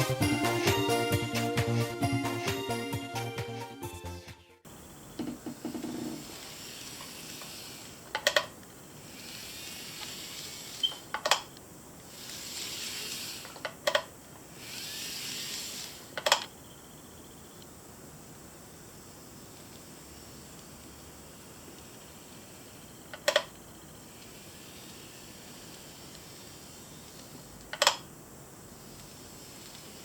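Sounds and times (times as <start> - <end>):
model train hiss: 4.7 - 16.4, 17.8 - 30.0
wheels clicking on rail joints: 5.2 - 16.5, 20.6 - 28.0, 28.7 - 30.0.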